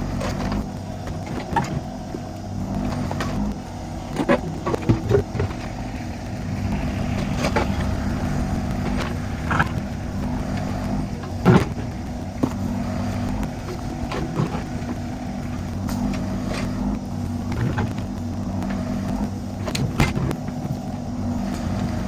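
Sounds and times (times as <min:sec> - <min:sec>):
excavator diesel engine running: 0:00.0 - 0:22.0
sharp knocks and clunks: 0:00.2 - 0:05.9, 0:06.7 - 0:15.1.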